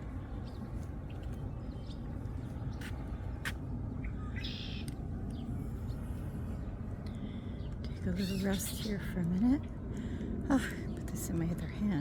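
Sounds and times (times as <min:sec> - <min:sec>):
steady low rumble: 0:00.0 - 0:12.0
bird chirps: 0:04.0 - 0:05.4, 0:08.1 - 0:09.0.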